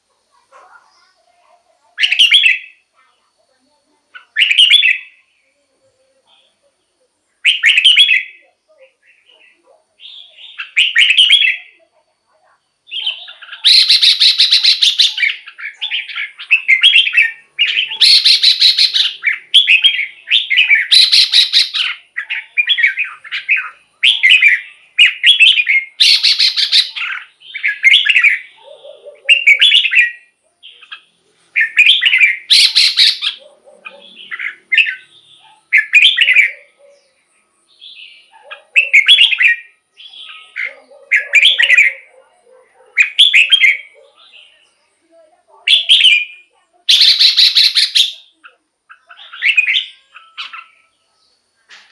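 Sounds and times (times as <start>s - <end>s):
bird singing whistled phrases: 4.2s - 5.2s, 7.4s - 8.4s, 10.0s - 11.8s, 12.9s - 28.5s, 31.6s - 33.4s, 35.8s - 36.6s, 37.8s - 42.1s, 45.7s - 48.4s, 49.0s - 50.8s.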